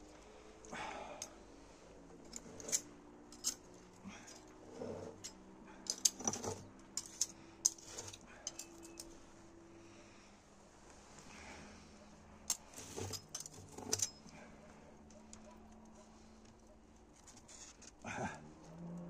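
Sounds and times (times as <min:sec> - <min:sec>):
metallic clinks of cookware: 0:05.9 - 0:09.1, 0:12.5 - 0:14.2.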